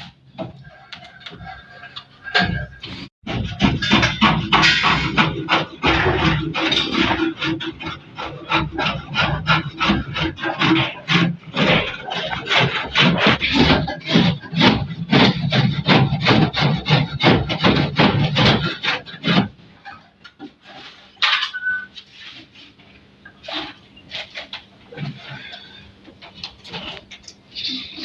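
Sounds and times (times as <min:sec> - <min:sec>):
hand tool rasping on wood: 0:03.3 - 0:20.0.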